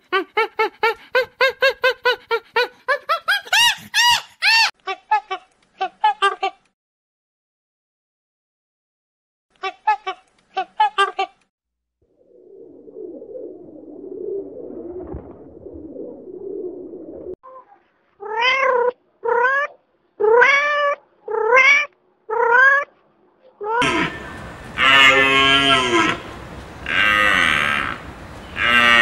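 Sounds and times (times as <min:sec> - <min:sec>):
loud harsh animal call: 0:23.8 - 0:29.0.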